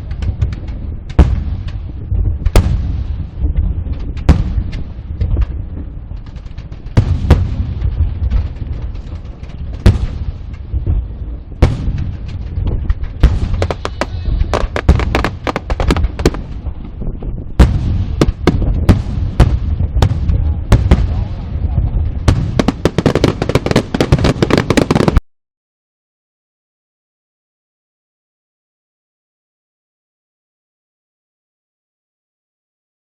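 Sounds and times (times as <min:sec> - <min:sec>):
fireworks bangs and cracks: 0:00.0 - 0:25.2
low rumble: 0:00.0 - 0:25.2.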